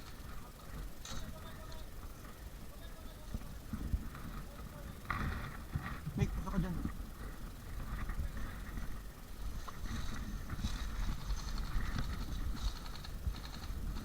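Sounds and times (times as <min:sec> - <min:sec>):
wind rumbling on microphone: 0:05.1 - 0:14.0.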